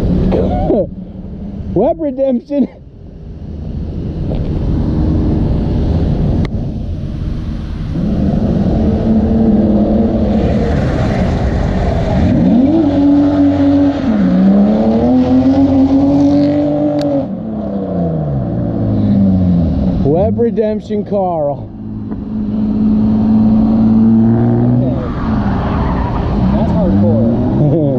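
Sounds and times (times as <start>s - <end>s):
car engine revving hard: 7.9s - 20.3s, 21.8s - 27.9s.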